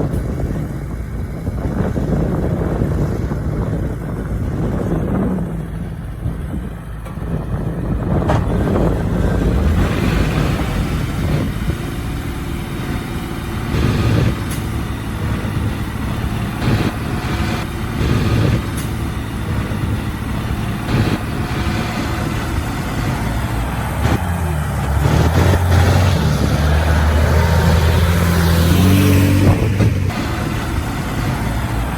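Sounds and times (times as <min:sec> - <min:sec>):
heavy diesel engines running: 0:00.0 - 0:31.9
knocks and clanks: 0:07.0 - 0:11.9.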